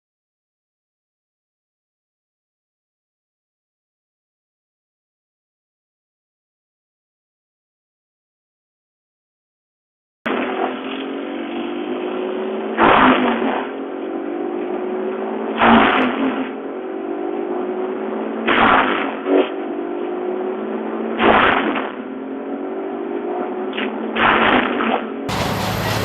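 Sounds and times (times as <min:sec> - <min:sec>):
wood chipper engine: 0:10.3 - 0:20.4, 0:25.3 - 0:26.0
chipper crunching timber: 0:10.4 - 0:13.8, 0:18.4 - 0:19.4, 0:24.2 - 0:26.0.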